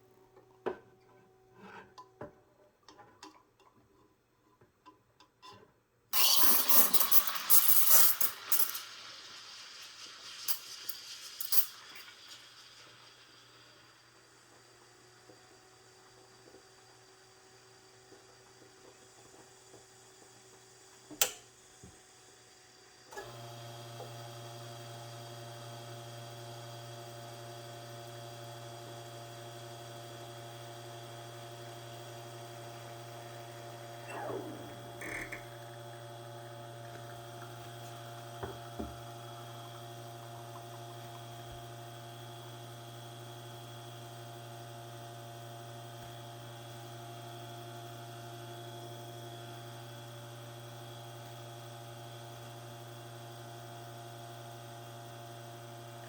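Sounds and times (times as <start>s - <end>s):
espresso machine pump humming: 6.2s - 56.0s.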